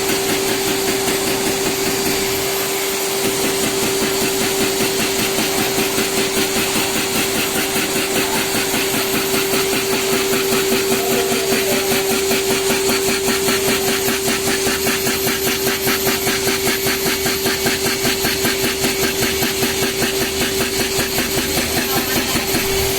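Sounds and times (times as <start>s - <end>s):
fast tapping drill strokes: 0.0s - 22.9s
whining spindles: 0.0s - 22.9s.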